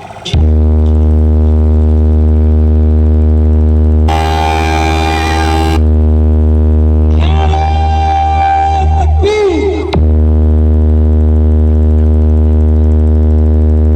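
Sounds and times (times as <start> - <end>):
higher steady tone: 0.0 - 13.9
low droning tone: 0.0 - 13.9
buzzy bright tone: 4.1 - 5.9.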